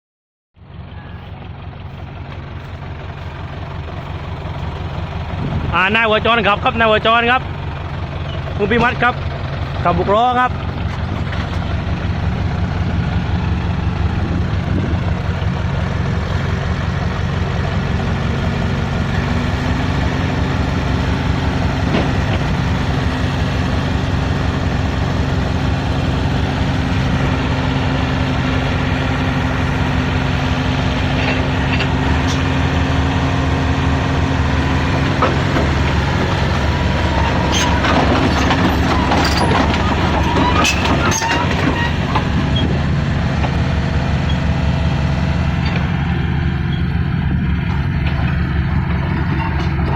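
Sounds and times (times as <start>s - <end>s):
excavator diesel engine running: 0.6s - 49.9s
metallic clanks and knocks: 35.1s - 42.7s, 47.6s - 49.9s.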